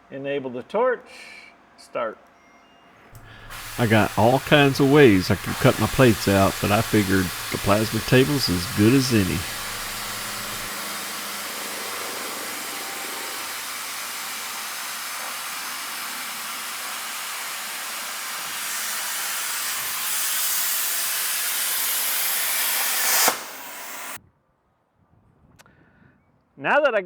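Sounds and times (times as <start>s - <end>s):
plasma cutter torch hissing: 3.2s - 24.2s
sharp snap: 22.9s - 24.2s.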